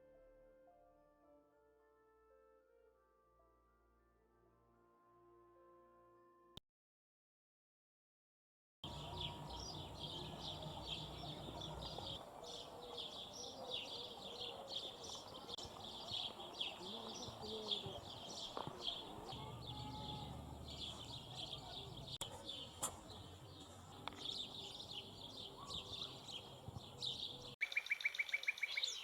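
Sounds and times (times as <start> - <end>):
small birds chirping: 8.8 - 29.0
low outdoor rumble: 19.0 - 24.2.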